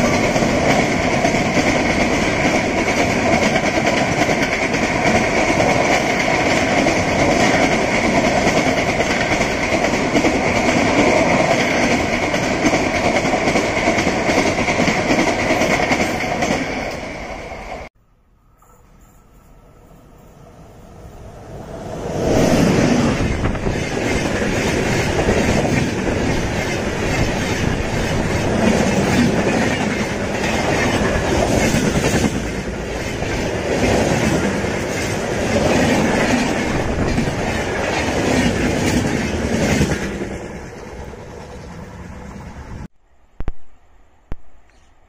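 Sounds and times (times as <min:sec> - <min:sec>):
train wheels clattering on rail joints: 0:23.2 - 0:41.9.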